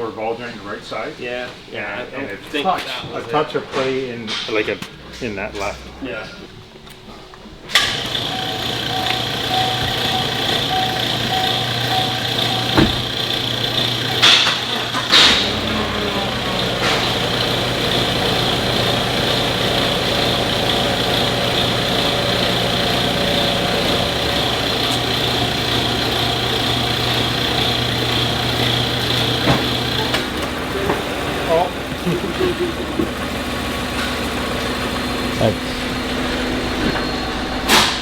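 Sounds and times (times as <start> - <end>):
pickup truck engine running: 7.8 - 38.0.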